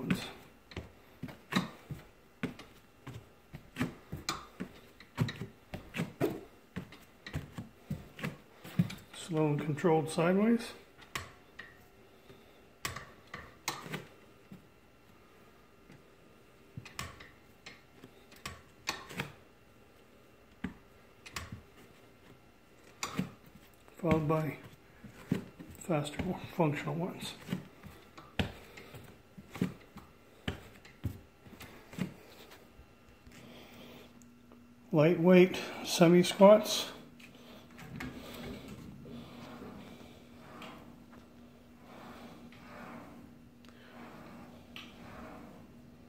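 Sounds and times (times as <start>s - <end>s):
shoes tapping on step platform: 0.0s - 9.1s.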